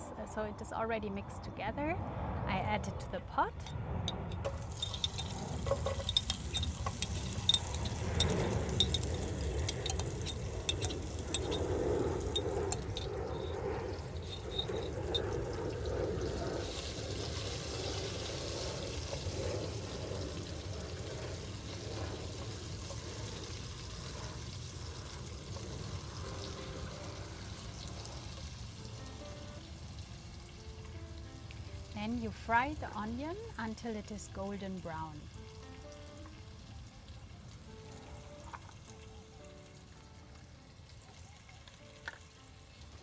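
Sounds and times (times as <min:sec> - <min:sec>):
onion frying in hot oil: 0:04.4 - 0:43.0.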